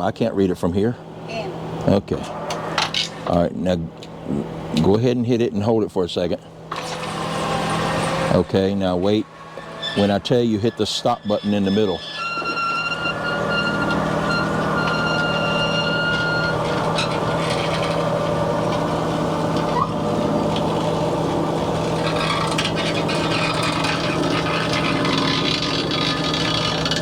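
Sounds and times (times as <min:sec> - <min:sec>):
awning motor humming: 0:06.7 - 0:27.0.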